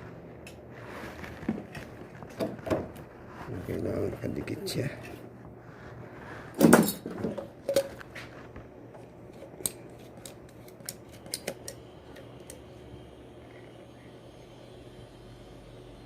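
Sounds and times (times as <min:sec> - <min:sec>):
metal tools clattering: 0:06.6 - 0:07.9.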